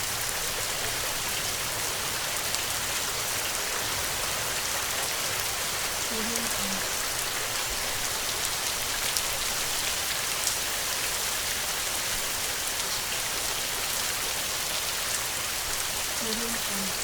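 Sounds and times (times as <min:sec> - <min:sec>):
heavy rain hiss: 0:00.0 - 0:17.0
raindrop ticks: 0:06.0 - 0:10.6.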